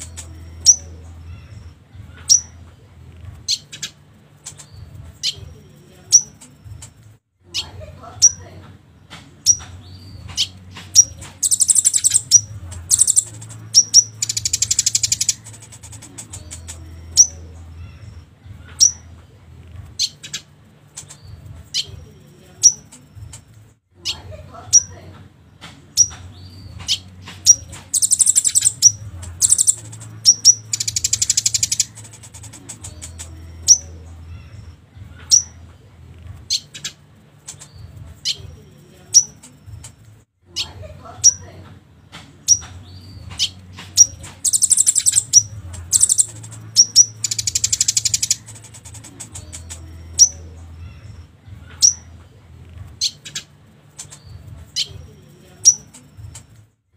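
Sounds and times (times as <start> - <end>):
recorded songbird chirps and trills: 0.0 - 2.7, 9.4 - 19.1, 25.9 - 35.6, 36.5 - 40.0, 42.4 - 52.2, 53.0 - 56.6.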